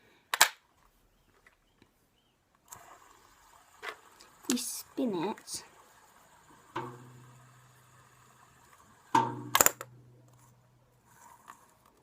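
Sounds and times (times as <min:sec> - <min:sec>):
fidget spinner whirring: 0:02.6 - 0:12.0
fidget spinner click: 0:09.5 - 0:10.0.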